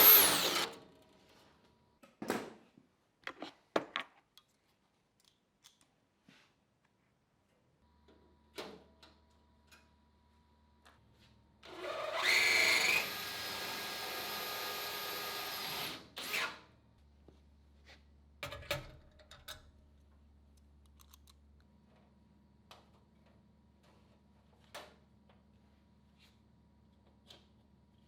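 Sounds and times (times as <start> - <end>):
power tool cutting sheet metal: 0.0 - 0.8, 11.7 - 16.6
metal parts clicking and knocking: 20.8 - 21.4.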